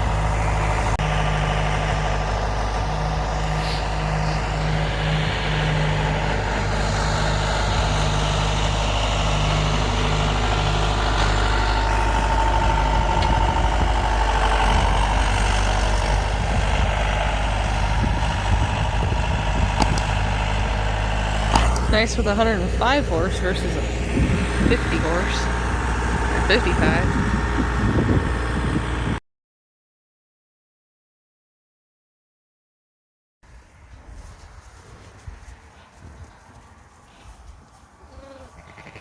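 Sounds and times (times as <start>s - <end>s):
tractor diesel engine running: 0.0s - 29.2s.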